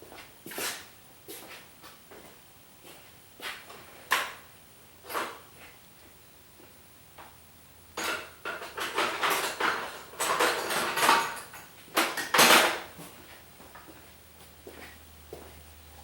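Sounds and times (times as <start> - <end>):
hard objects clinking and clattering: 8.0 - 12.8.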